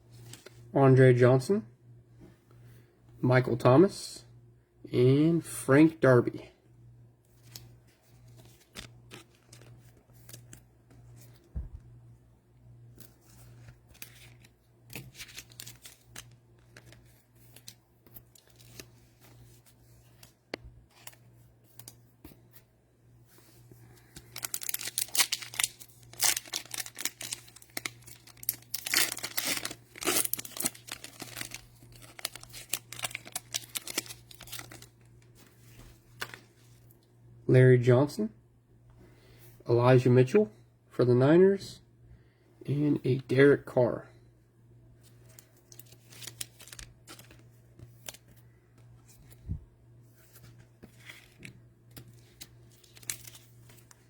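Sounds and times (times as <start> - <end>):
faint steady hum: 0.0 - 54.0
card handling rustling: 7.3 - 12.0, 12.8 - 22.7, 23.4 - 36.9, 45.0 - 54.0
cellophane wrapper crinkling: 13.1 - 19.3, 24.0 - 35.4, 45.3 - 48.3, 50.8 - 54.0.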